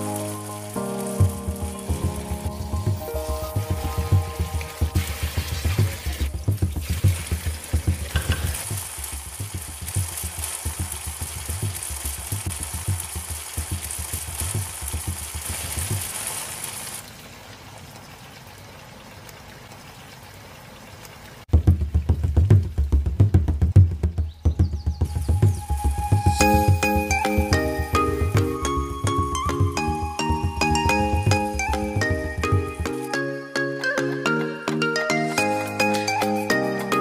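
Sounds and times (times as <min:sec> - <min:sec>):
low pulsing: 0:00.0 - 0:16.0, 0:21.5 - 0:33.1
food sizzling in hot oil: 0:00.0 - 0:17.0, 0:25.2 - 0:28.3.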